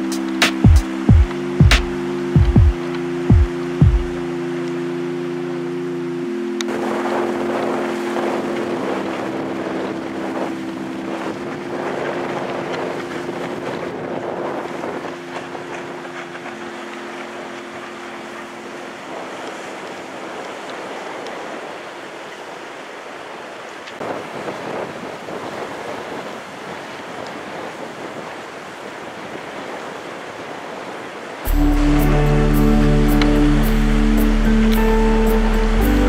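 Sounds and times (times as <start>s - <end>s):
soft sustained music chords: 0.0s - 20.7s, 31.5s - 36.0s
rushing splashing water: 0.0s - 36.0s
wind buffeting microphone: 6.7s - 22.2s, 24.0s - 36.0s.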